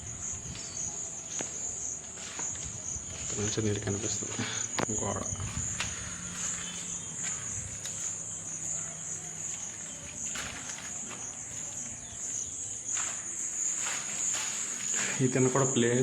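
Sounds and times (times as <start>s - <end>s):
crickets chirring: 0.0s - 16.0s
faint scuffs: 4.3s - 15.4s.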